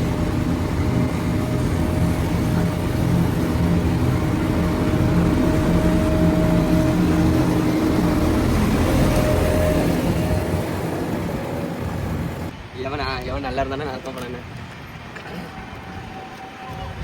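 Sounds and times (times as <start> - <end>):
diesel engine running: 0.0 - 12.5.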